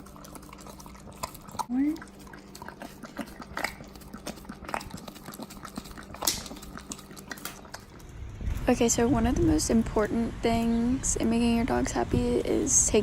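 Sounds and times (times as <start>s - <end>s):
dog licking and lapping: 0.0s - 8.6s.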